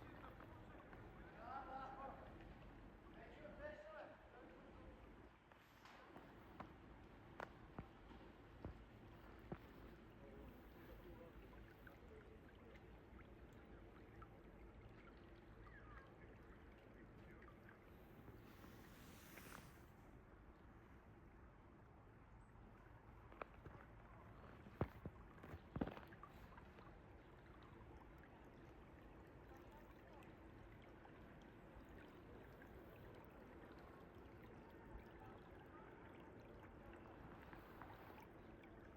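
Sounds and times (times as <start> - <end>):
stream water flowing: 0.0 - 38.9
faint chirp: 14.8 - 19.8.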